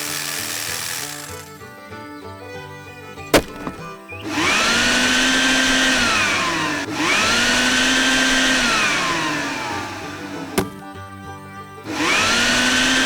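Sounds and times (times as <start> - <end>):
motor whirring up and down: 0.0 - 1.7, 3.4 - 10.9, 11.8 - 13.0.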